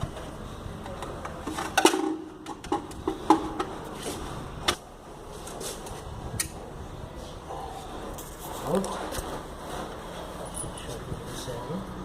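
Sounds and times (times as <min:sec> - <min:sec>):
tools knocking and clicking: 0:00.8 - 0:03.8.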